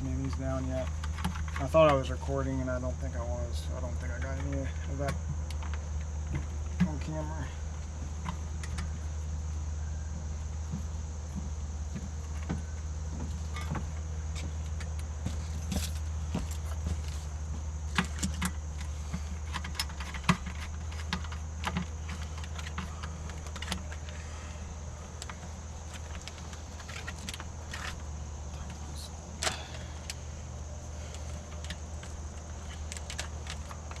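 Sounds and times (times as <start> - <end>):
steady low hum: 0.0 - 34.0
hand tools clicking and rattling: 17.9 - 28.8, 29.4 - 34.0.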